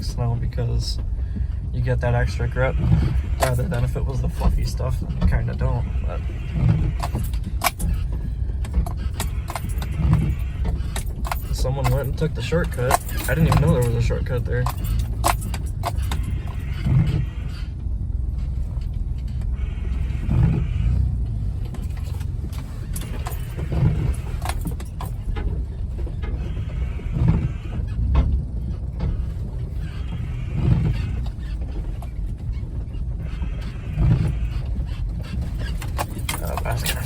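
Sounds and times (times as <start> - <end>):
drivetrain and tyre rumble: 0.0 - 37.0
loose rattles and clicks: 6.5 - 17.1, 27.2 - 37.0.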